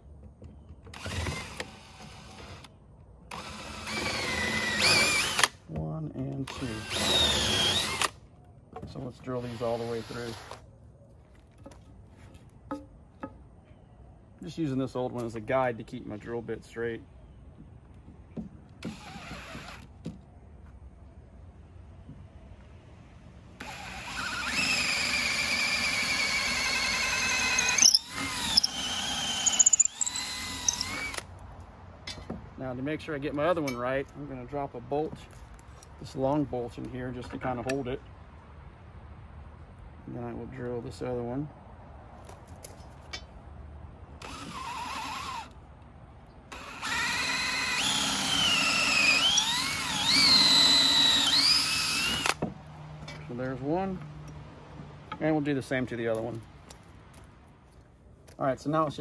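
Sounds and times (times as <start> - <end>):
electric drill motor whine: 3.3 - 5.5, 6.5 - 8.1, 18.8 - 19.8, 23.6 - 31.2, 44.2 - 45.5, 46.5 - 52.4.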